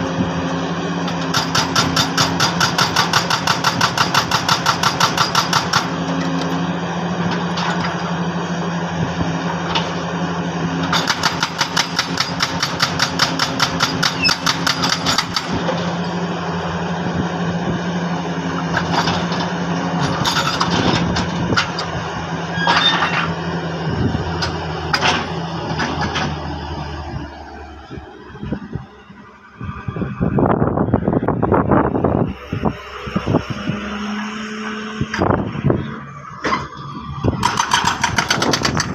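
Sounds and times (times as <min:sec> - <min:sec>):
engine drone: 0:00.0 - 0:38.9
jackhammer chiselling rock: 0:01.2 - 0:06.0, 0:10.9 - 0:15.6, 0:37.4 - 0:38.9.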